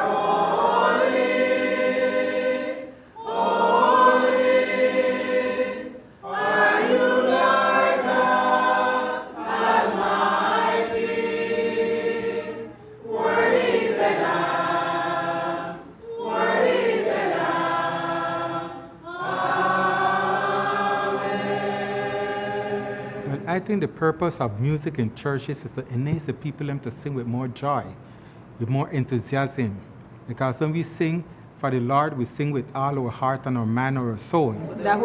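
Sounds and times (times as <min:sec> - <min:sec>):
choir singing a hymn unaccompanied: 0:00.0 - 0:27.8.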